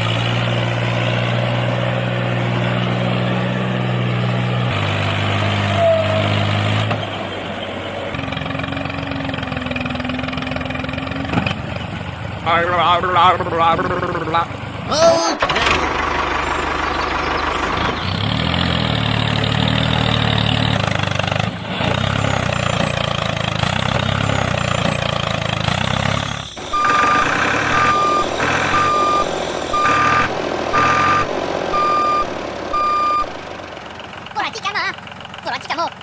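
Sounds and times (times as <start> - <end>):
vehicle engine running: 0.0 - 36.0
reversing beeper: 26.0 - 33.9.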